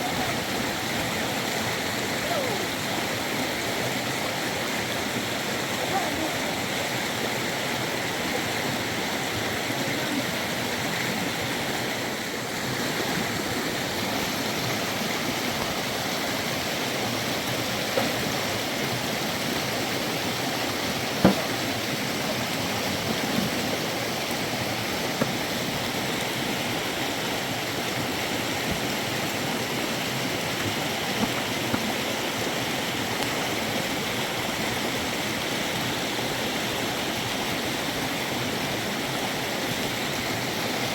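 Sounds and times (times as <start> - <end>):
river running: 0.0 - 40.9.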